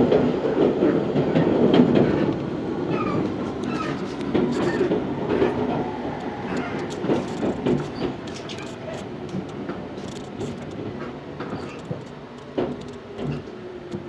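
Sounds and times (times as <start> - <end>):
train interior rumble: 0.0 - 14.0
train wheel clicks and knocks: 0.0 - 14.0.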